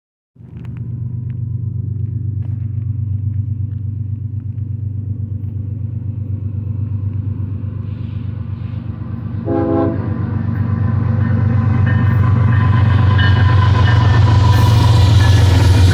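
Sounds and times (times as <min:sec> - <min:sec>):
diesel locomotive rumble: 0:00.4 - 0:15.9
train horn blast: 0:09.3 - 0:10.7.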